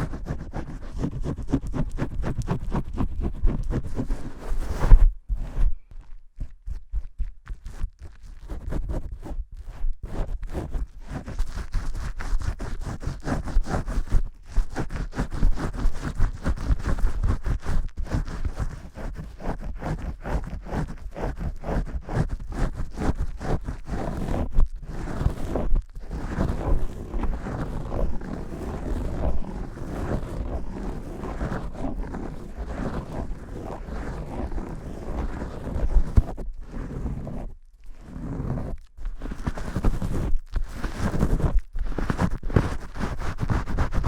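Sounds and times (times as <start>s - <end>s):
shampoo scrubbing: 26.3s - 36.0s.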